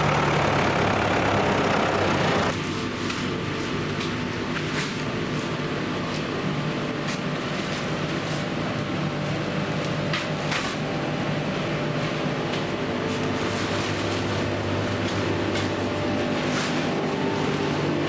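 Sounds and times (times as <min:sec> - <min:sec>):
machinery humming: 0:00.0 - 0:02.6.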